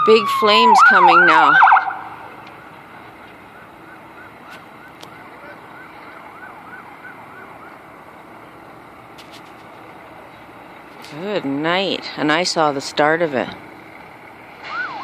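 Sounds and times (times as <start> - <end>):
distant siren yelping: 0.0 - 9.0, 14.4 - 15.0.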